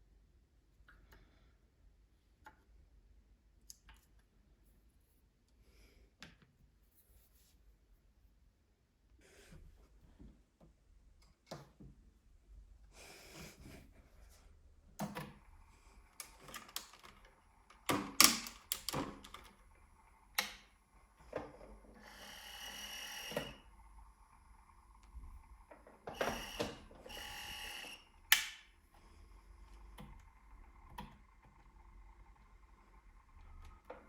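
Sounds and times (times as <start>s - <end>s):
sewing machine running: 15.2s - 34.0s
tools clicking and knocking: 17.8s - 19.5s.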